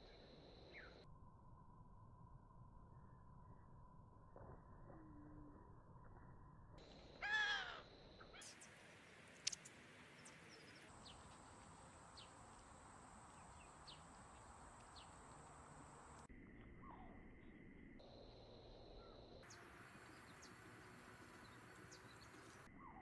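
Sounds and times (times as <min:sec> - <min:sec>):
faint high bird chirps: 0:00.0 - 0:01.0, 0:07.2 - 0:11.3, 0:18.4 - 0:23.0
crow cawing: 0:07.2 - 0:07.8.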